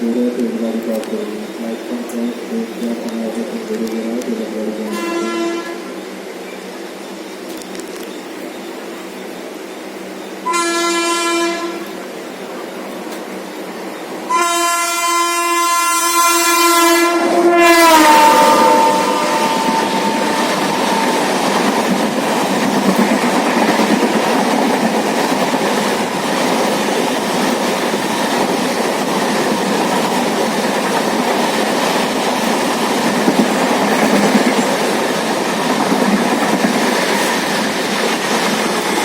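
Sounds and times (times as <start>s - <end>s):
train wheels rushing on rails: 0.0s - 39.0s
train horn: 4.8s - 6.0s, 10.4s - 12.0s, 14.3s - 21.6s.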